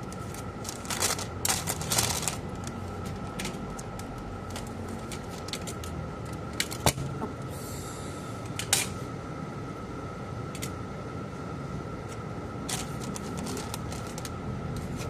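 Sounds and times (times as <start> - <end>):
steady high hum: 0.0 - 15.0
small hard objects clattering: 12.7 - 14.4.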